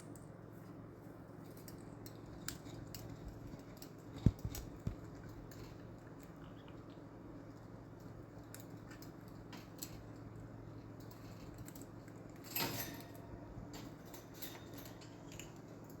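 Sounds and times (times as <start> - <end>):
low room hum: 0.0 - 16.0
parrot clicks and scratches: 1.5 - 6.9.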